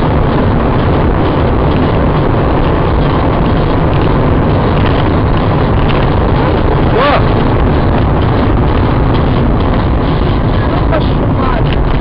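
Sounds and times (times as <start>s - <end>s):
moving vehicle rumble: 0.0s - 12.0s.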